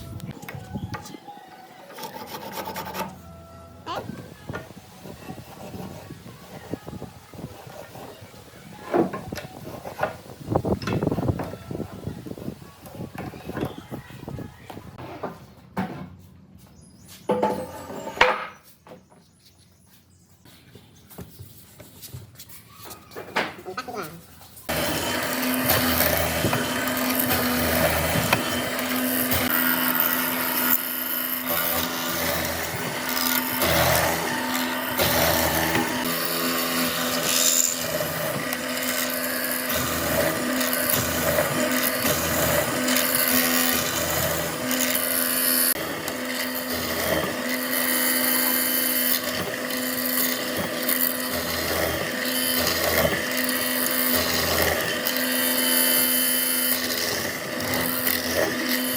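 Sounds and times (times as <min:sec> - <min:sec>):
power tool rasping wood: 0:01.9 - 0:03.2, 0:04.7 - 0:11.6, 0:24.7 - 0:58.9.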